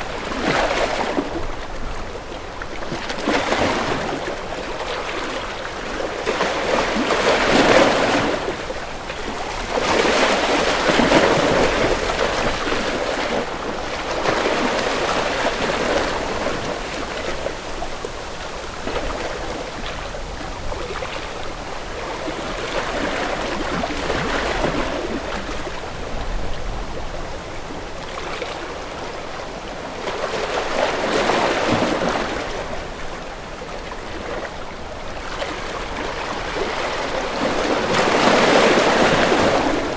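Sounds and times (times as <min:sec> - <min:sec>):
sea waves washing in: 0:35.2 - 0:39.9.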